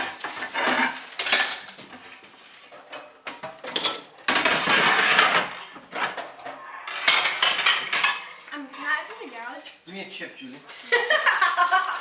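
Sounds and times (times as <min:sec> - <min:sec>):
plates and cutlery clinking: 0:00.0 - 0:09.2
dishes rattling and scraping: 0:00.0 - 0:09.3.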